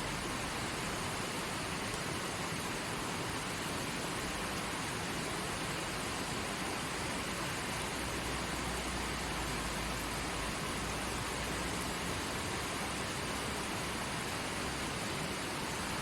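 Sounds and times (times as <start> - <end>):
stream running over rocks: 0.0 - 16.0.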